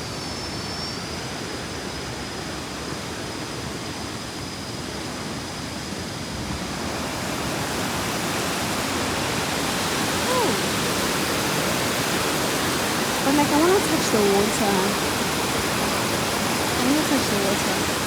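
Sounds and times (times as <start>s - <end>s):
waterfall rushing: 6.8s - 18.0s.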